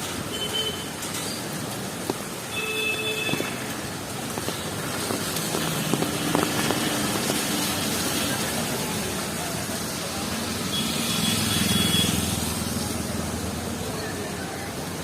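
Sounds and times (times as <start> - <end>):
rain: 0.0 - 15.0
traffic on wet road: 0.0 - 15.0.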